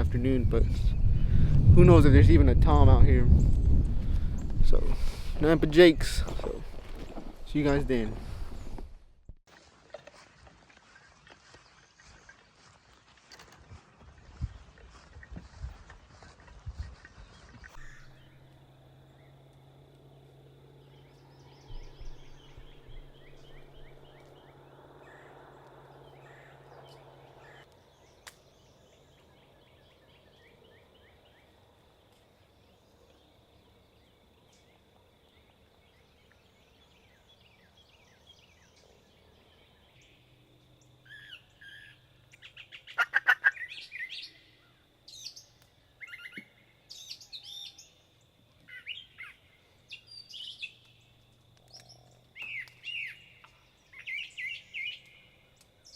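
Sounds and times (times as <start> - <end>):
low hum: 17.0 - 31.5
birds chirping and whistling: 17.1 - 19.4, 20.8 - 25.3, 41.1 - 47.9, 48.7 - 51.1, 51.7 - 55.9.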